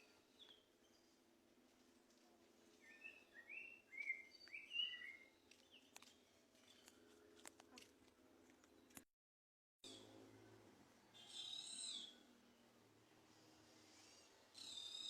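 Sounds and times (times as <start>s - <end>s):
faint birdsong whistled notes: 0.0s - 1.2s, 2.8s - 7.0s, 11.0s - 12.3s, 13.8s - 15.0s.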